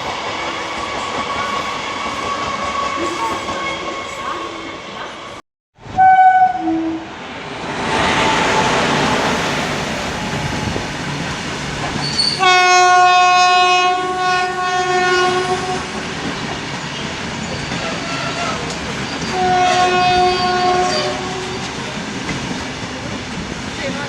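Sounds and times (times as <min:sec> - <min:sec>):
train wheels clattering on rails: 0:00.0 - 0:05.3, 0:15.5 - 0:24.0
locomotive horn blast: 0:05.9 - 0:07.1, 0:12.4 - 0:16.0, 0:19.3 - 0:21.8.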